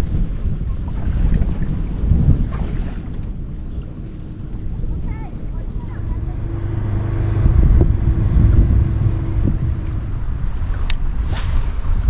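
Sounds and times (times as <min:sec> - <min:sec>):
boat motor rumbling: 0:00.7 - 0:12.0
steady hum: 0:03.5 - 0:11.3.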